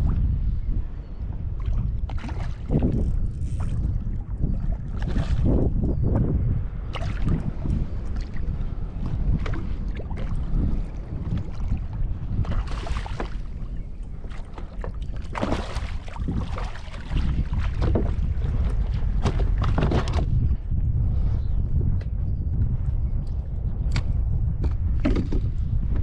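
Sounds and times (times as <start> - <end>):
wind buffeting microphone: 0.0 - 26.0
water splashing around kayak: 1.3 - 20.4.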